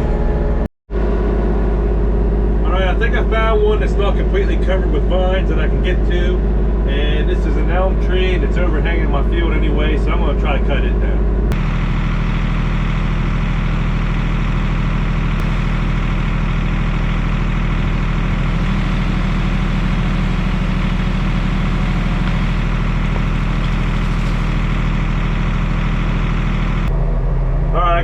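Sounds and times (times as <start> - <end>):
tractor diesel engine running: 11.0 - 27.0.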